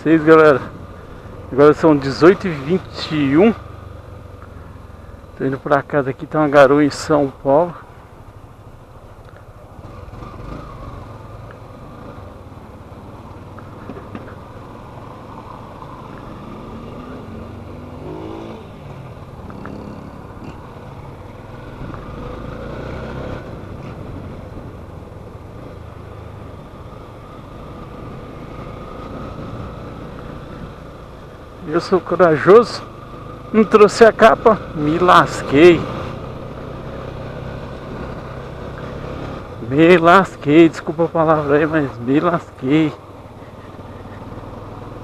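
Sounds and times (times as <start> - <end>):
road and wind noise: 0.0 - 45.0
motorcycle engine revving: 9.7 - 45.0.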